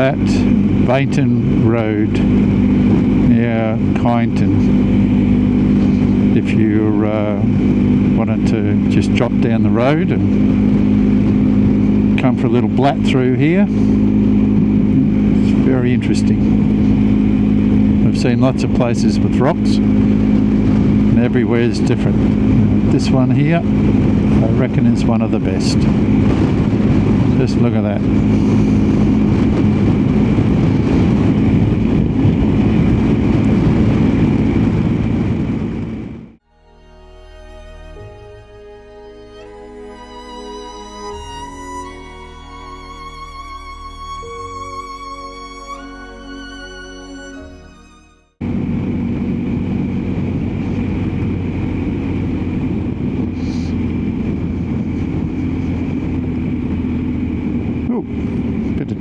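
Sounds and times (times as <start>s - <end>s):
wind noise: 0.0s - 36.4s, 48.4s - 59.0s
motorcycle engine: 0.0s - 59.0s
road noise: 0.0s - 59.0s
soft music with held notes: 36.5s - 48.4s.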